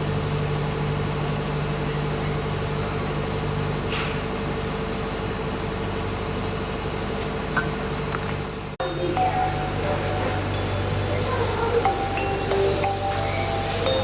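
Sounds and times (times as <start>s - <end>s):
low droning held tones: 8.8s - 14.0s.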